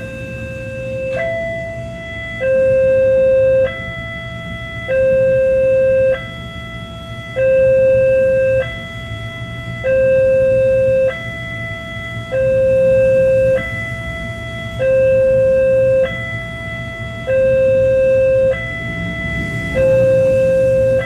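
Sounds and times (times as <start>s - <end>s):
two-note electronic warning chime: 0.0s - 4.0s
steady low rumble: 0.0s - 21.0s.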